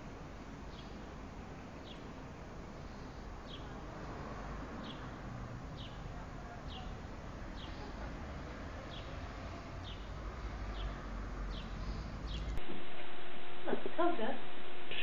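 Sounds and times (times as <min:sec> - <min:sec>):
low outdoor background rumble: 0:00.0 - 0:15.0
small bird chirping: 0:00.7 - 0:01.0, 0:01.8 - 0:02.1, 0:04.8 - 0:08.0, 0:09.8 - 0:12.6.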